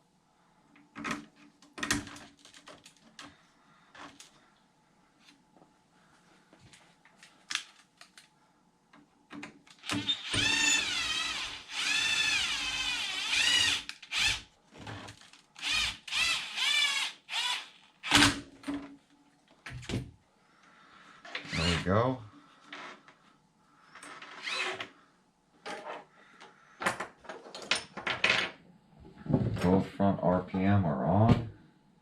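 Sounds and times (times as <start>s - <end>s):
cordless drill whirring: 9.8s - 14.4s, 15.6s - 18.2s, 24.2s - 24.9s.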